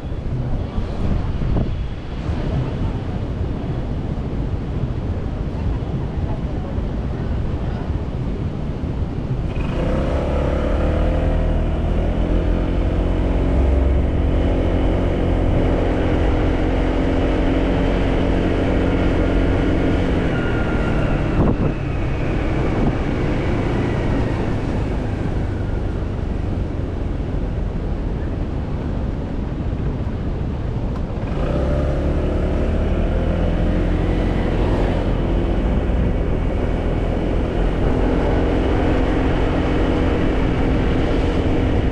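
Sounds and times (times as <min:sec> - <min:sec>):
road and wind noise: 0:00.0 - 0:41.9
motorcycle engine running: 0:09.3 - 0:41.9.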